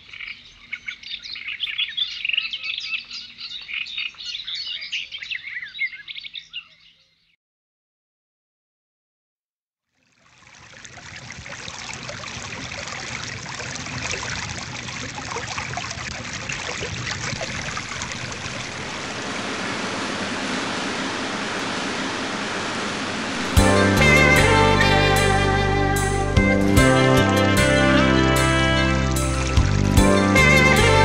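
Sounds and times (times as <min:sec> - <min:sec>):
stream water babbling: 0:10.0 - 0:31.0.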